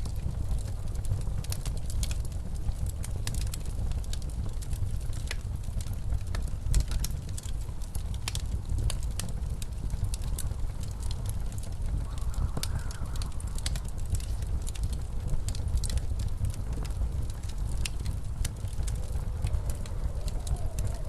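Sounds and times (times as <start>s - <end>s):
blizzard wind rumble: 0.0s - 21.0s
wood fire crackling: 0.0s - 21.0s
wind howling: 9.7s - 21.0s.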